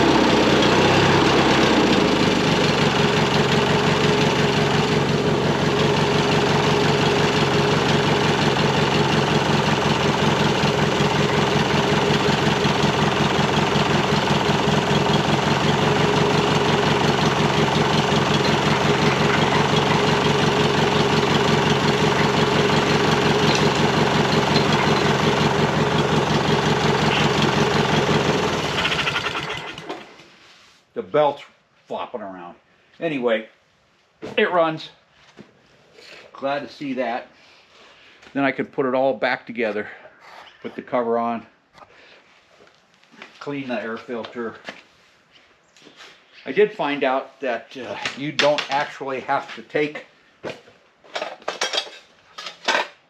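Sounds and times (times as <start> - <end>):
tractor engine idling: 0.0 - 30.1.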